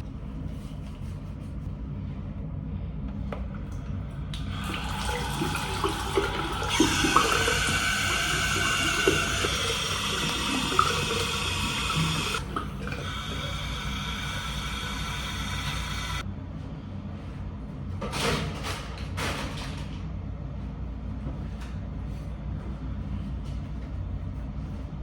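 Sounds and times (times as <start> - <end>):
shower water running: 4.4 - 16.2.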